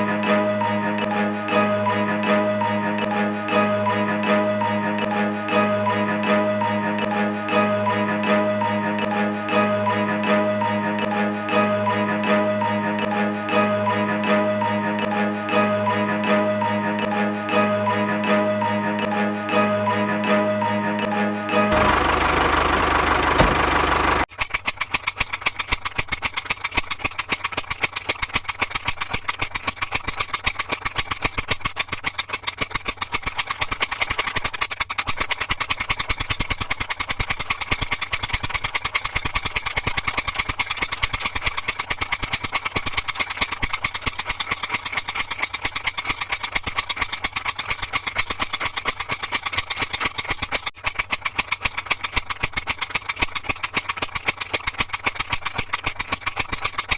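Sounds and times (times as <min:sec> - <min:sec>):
music: 0:00.0 - 0:22.6
small engine idling: 0:00.0 - 0:56.9.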